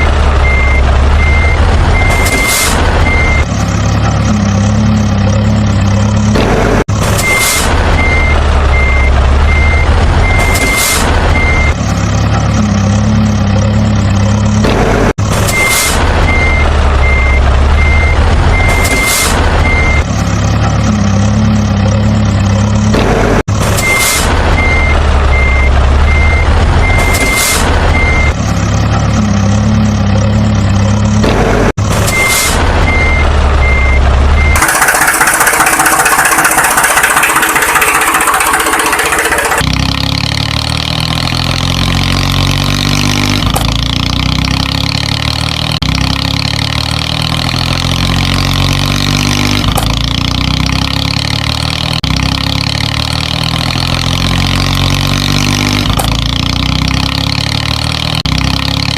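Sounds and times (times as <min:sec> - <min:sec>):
truck reversing alarm beeping: 0:00.0 - 0:03.5, 0:07.2 - 0:11.8, 0:15.5 - 0:20.1, 0:23.8 - 0:28.4, 0:32.1 - 0:39.6
truck engine rumble: 0:00.0 - 0:58.9.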